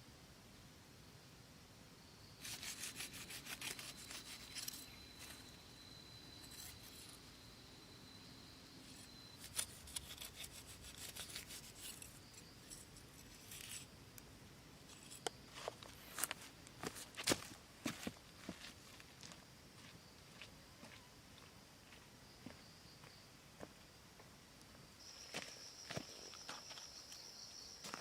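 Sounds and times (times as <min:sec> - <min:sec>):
faint high whine: 0:00.0 - 0:28.0
scraping strokes on wood: 0:02.4 - 0:05.6, 0:08.9 - 0:13.8.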